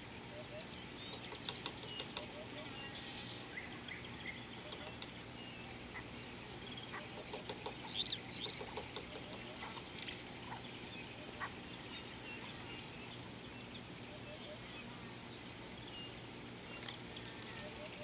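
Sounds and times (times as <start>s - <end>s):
birds chirping: 0.0s - 18.0s
outdoor background noise: 0.0s - 18.0s.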